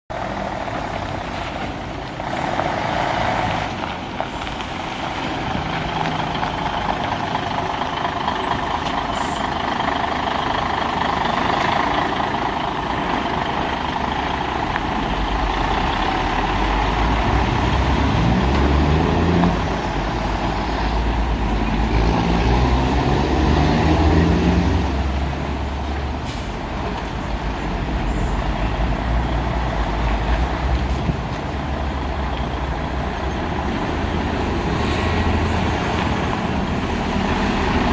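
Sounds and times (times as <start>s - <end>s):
diesel truck engine revving: 0.1s - 37.9s.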